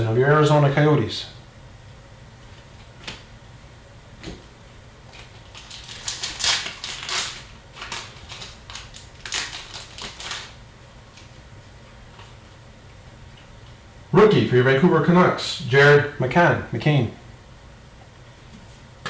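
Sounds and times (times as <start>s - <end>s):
wrappers crinkling and tearing: 5.1s - 11.3s.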